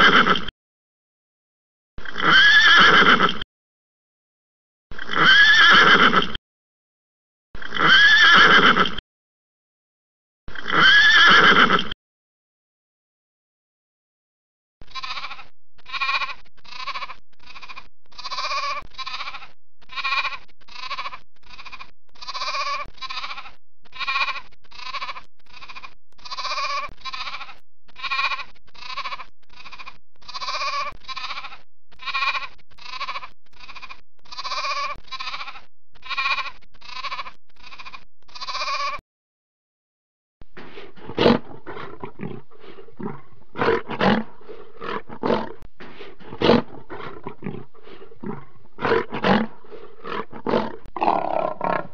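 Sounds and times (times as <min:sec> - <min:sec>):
lamb bleating: 0:02.1 - 0:03.4, 0:10.6 - 0:11.9, 0:14.8 - 0:39.0, 0:40.7 - 0:45.6, 0:46.3 - 0:51.9
lion roaring and growling: 0:40.6 - 0:51.9.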